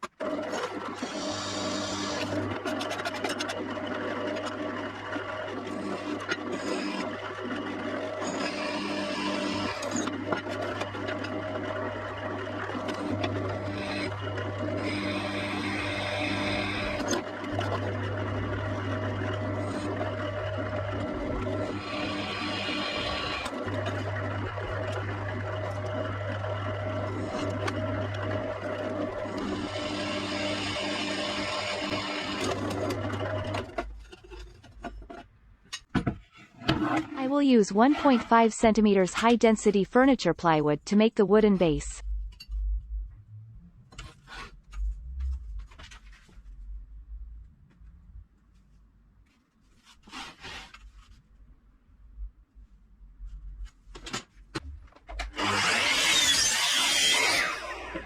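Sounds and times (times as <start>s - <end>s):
electric drill boring into metal: 0.6s - 4.6s, 5.6s - 11.4s, 12.7s - 18.6s, 21.2s - 25.9s, 27.0s - 33.8s, 55.2s - 58.0s
low machine hum: 41.9s - 48.2s.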